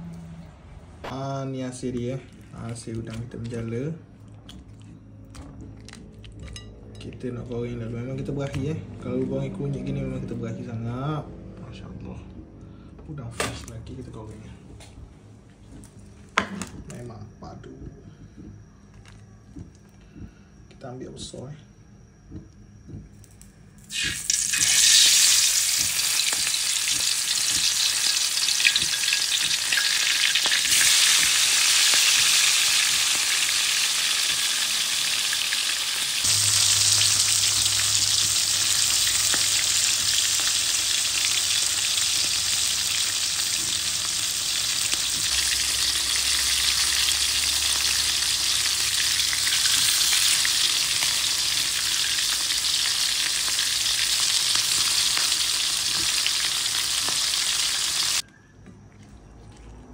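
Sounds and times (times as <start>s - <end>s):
prawns sizzling in hot oil: 23.8s - 58.2s.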